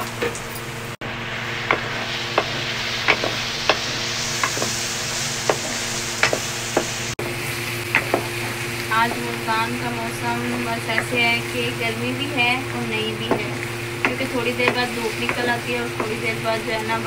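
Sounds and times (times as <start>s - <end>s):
vegetables sizzling in a frying pan: 0.0s - 17.0s
wooden spoon scraping a pan: 1.6s - 9.6s.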